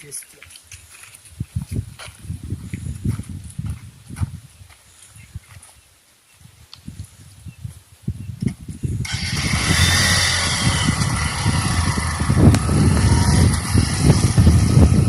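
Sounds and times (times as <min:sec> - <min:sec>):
wind on microphone: 0:01.2 - 0:05.8, 0:06.4 - 0:15.0
vehicle engine running: 0:09.0 - 0:15.0.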